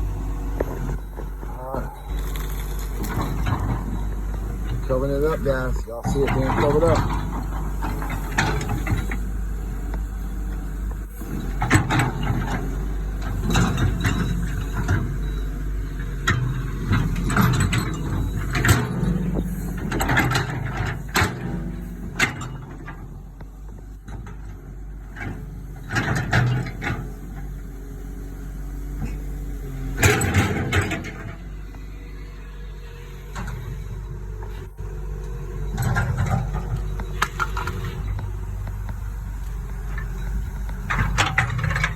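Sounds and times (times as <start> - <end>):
excavator diesel engine running: 0.0 - 41.9
clanks and scrapes of digging: 0.5 - 10.2, 15.9 - 27.7, 28.8 - 31.9, 33.1 - 41.9.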